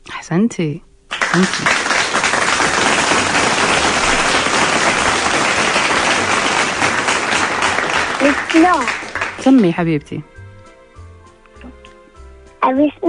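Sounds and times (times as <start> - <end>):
crowd applause: 1.1 - 9.7.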